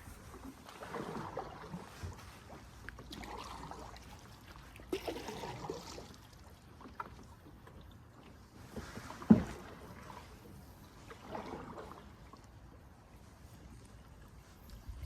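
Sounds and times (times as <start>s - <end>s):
paddle strokes in water: 0.0s - 15.0s.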